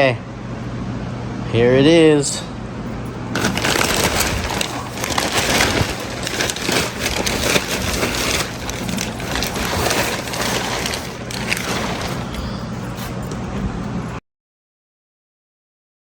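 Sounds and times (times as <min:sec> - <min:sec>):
packaging tearing and crumpling: 0:03.4 - 0:13.1.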